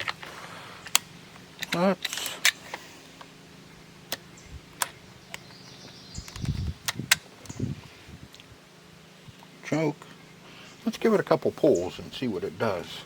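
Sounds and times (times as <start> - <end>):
chainsaw being handled clicks: 0.8 - 3.3, 6.2 - 7.6.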